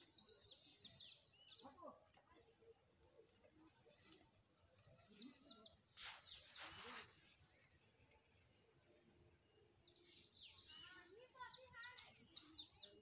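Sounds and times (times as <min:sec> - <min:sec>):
small birds chirping: 0:00.0 - 0:13.0
brief rustling: 0:05.9 - 0:07.2.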